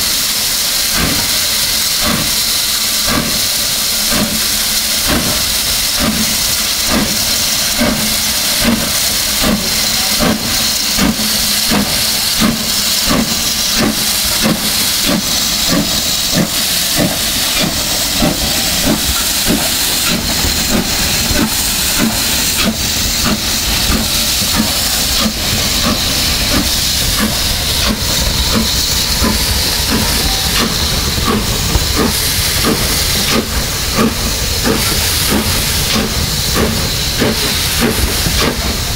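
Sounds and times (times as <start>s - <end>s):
steam hissing: 0.0s - 38.9s
steam locomotive chuffing: 0.0s - 38.9s
deep rumble: 11.7s - 38.9s.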